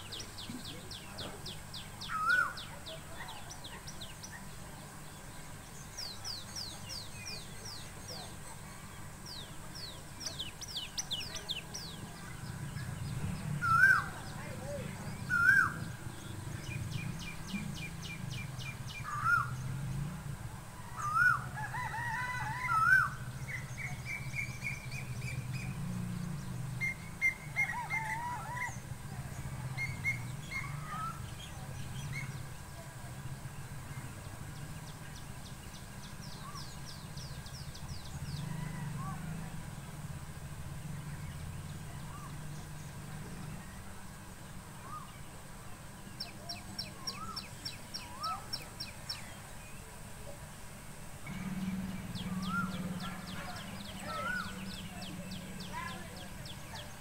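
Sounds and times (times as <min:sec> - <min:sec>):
songbirds chirping and trilling: 0:00.0 - 0:57.0
low hum: 0:50.9 - 0:57.0.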